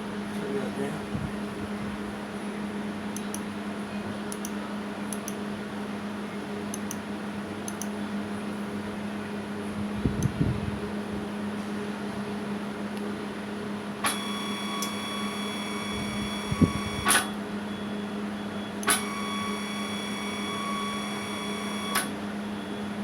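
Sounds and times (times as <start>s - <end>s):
steady low hum: 13.2s - 23.0s
motor whining: 14.0s - 17.4s, 18.8s - 22.2s.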